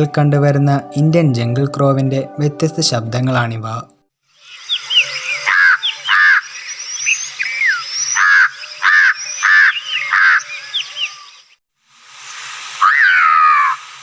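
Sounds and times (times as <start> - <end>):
crow cawing: 4.7 - 6.7, 7.6 - 11.3, 12.8 - 13.8.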